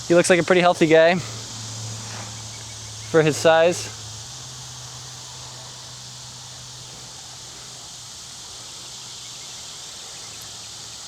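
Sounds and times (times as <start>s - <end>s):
insect chorus buzzing: 0.0s - 11.0s.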